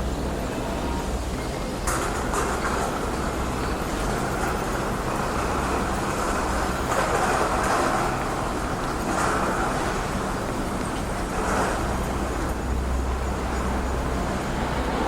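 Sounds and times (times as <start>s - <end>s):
cars passing: 10.6s - 15.0s.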